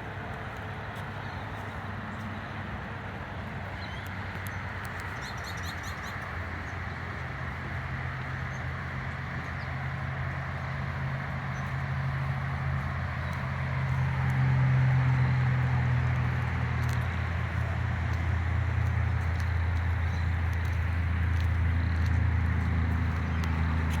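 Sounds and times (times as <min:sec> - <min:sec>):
low engine hum: 0:00.0 - 0:24.0.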